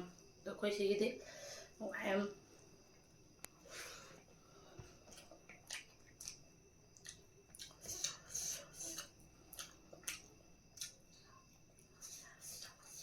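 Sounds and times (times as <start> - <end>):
person chewing: 5.0 - 11.0.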